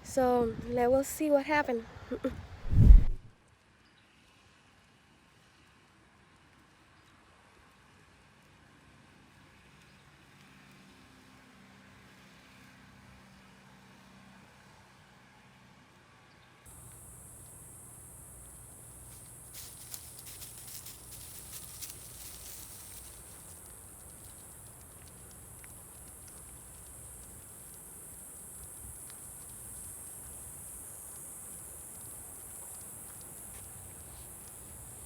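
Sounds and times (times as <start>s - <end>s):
crackling footsteps: 16.7s - 35.0s
insect chorus: 16.7s - 35.0s.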